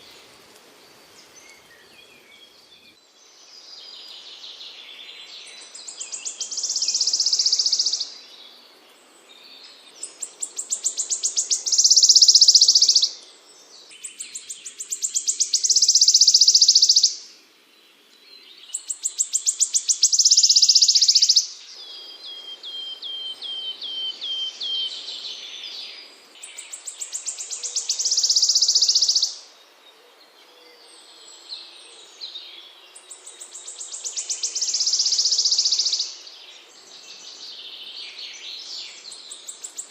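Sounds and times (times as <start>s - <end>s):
songbird singing buzzy trill: 1.0s - 17.3s, 18.0s - 39.9s.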